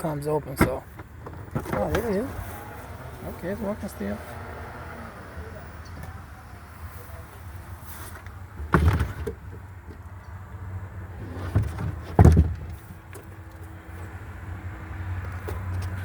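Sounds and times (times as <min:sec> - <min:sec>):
car door thumping shut: 0:01.4 - 0:06.7, 0:11.6 - 0:12.8.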